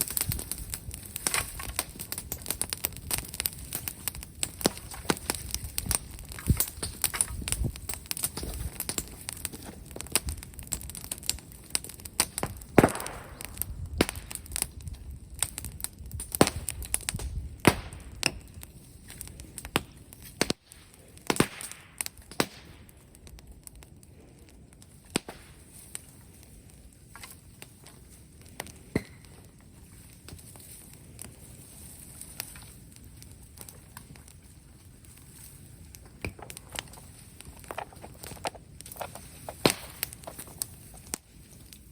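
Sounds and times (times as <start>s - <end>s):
bonfire crackling and popping: 0.0s - 41.9s.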